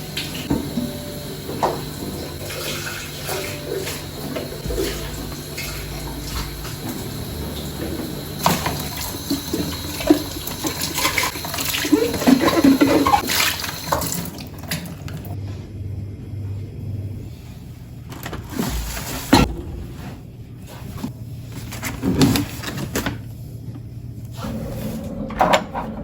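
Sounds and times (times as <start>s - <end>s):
tap water running into sink: 0.0s - 15.3s.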